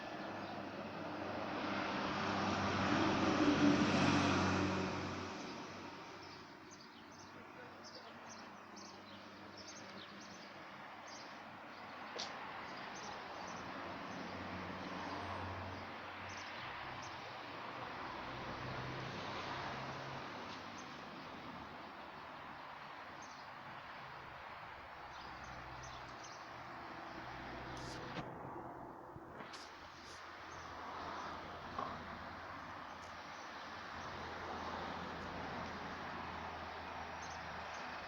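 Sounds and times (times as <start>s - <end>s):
passing motor vehicle: 0.0s - 7.2s, 12.5s - 21.8s, 24.6s - 38.0s.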